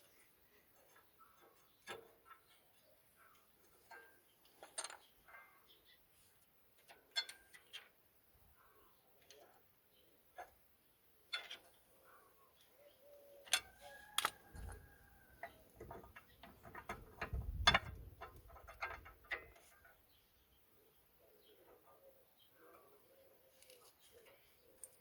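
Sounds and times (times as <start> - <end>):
tools and metal parts clinking: 3.8 - 5.5, 6.8 - 7.9, 11.3 - 11.8, 15.4 - 19.9.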